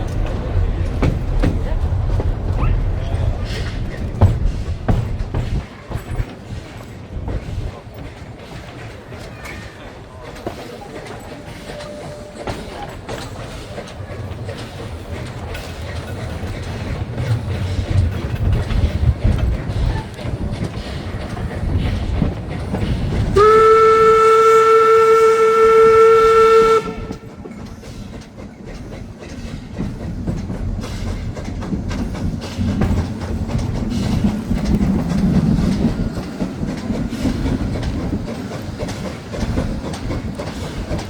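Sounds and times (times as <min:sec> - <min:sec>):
train wheels clattering on rails: 0:00.0 - 0:41.0
train whistle blast: 0:23.4 - 0:27.3.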